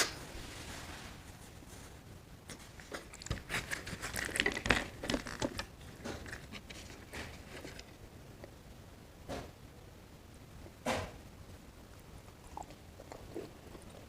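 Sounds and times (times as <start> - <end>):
eating crackles and clicks: 2.5 - 8.6, 11.9 - 14.0.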